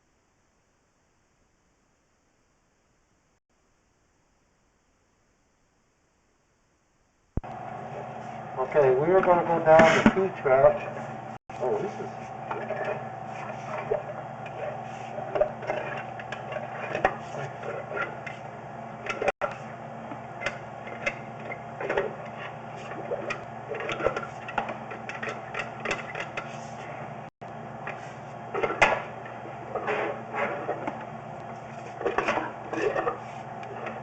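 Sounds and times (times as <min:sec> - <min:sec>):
steady mechanical hum: 0:07.4 - 0:34.0.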